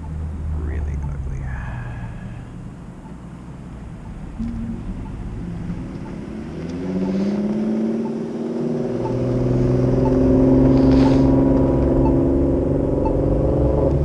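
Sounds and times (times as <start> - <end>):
vehicle engine accelerating: 0.0 - 14.0
push-button signal ticking: 4.0 - 5.3, 5.9 - 6.2, 9.0 - 9.2, 10.0 - 10.2, 12.0 - 12.2.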